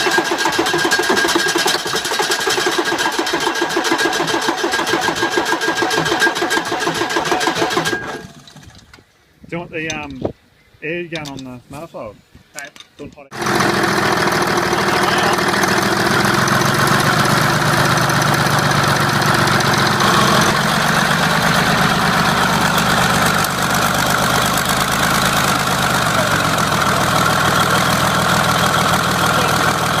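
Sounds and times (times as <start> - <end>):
diesel truck engine idling: 13.4 - 30.0.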